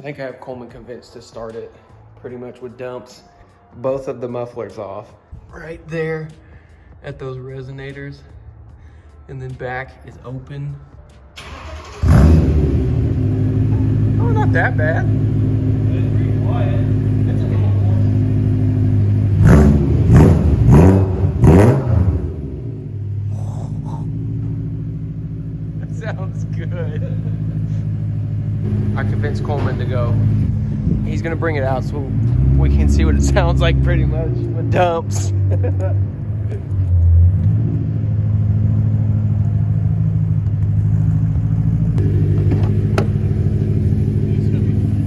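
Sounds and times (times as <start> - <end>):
car engine revving and idling: 11.0 - 45.0.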